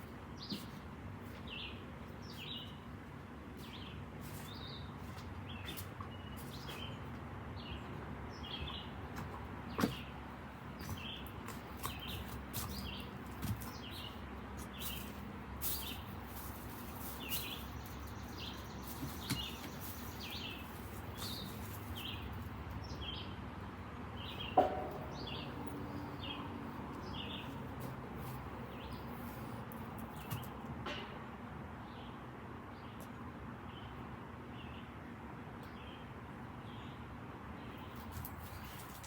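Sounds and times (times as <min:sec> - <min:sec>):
bird chirping: 0:03.6 - 0:09.0, 0:16.8 - 0:23.4, 0:24.2 - 0:29.4.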